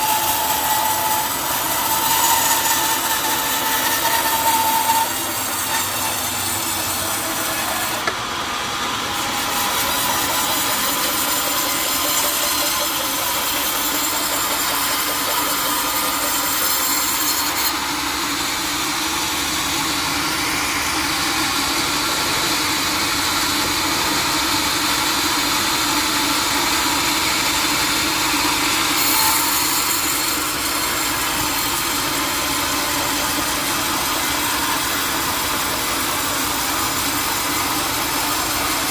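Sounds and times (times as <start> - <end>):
saw cutting wood: 0.0 - 38.9.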